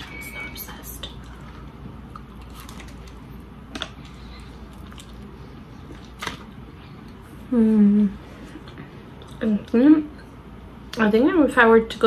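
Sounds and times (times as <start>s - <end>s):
chewing and wet mouth sounds: 1.0s - 7.2s, 8.5s - 9.5s.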